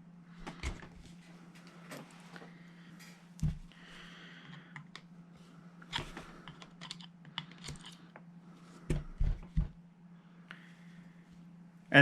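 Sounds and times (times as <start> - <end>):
screwdriver clicking and scraping metal: 5.9 - 8.0.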